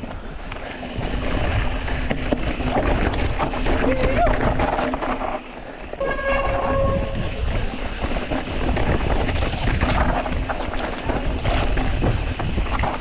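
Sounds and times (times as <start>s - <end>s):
bike rattling: 0.0s - 13.0s
tyres on dirt and rock: 0.0s - 13.0s
wind rushing over microphone: 0.0s - 13.0s
brief steady squeal: 6.0s - 7.6s.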